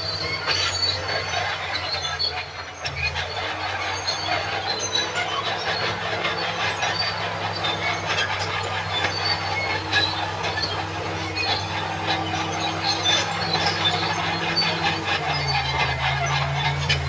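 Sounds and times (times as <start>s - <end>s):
bulldozer engine drone: 0.0s - 17.0s
steel tracks squealing and clanking: 0.0s - 17.0s.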